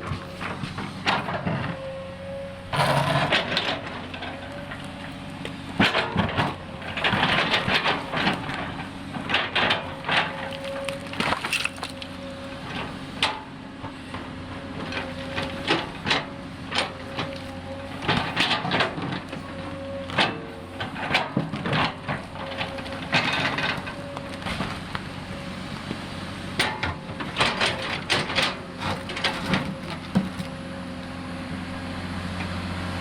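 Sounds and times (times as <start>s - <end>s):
excavator engine humming: 0.0s - 33.0s
sharp cracks and knocks: 3.2s - 12.1s.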